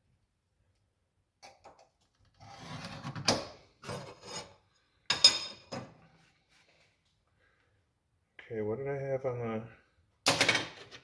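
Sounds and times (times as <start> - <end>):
metal scribe scratching sheet metal: 2.4 - 4.6.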